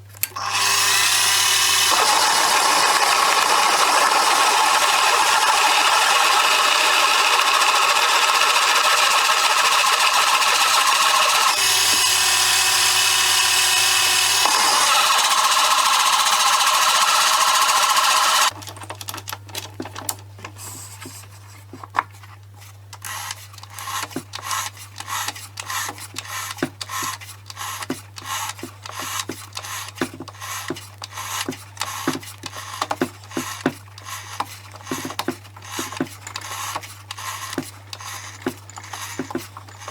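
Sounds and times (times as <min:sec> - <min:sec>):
electric power tool running: 0:00.4 - 0:18.6
rapid irregular clicking: 0:01.4 - 0:19.3, 0:23.0 - 0:39.9.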